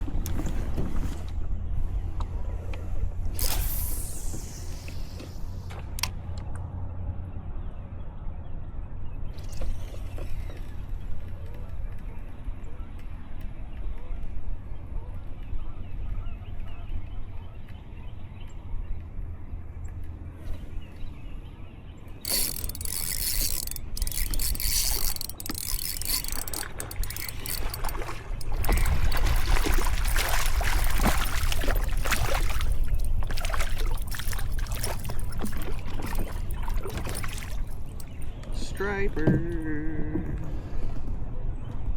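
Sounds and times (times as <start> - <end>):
water splashing and trickling: 22.3 - 40.2.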